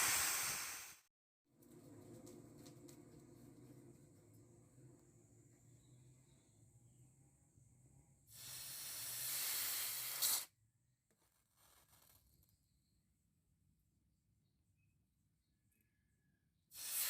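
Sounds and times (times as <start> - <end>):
steam hissing from quenched blade: 0.0 - 1.0, 8.3 - 10.5, 16.8 - 17.0.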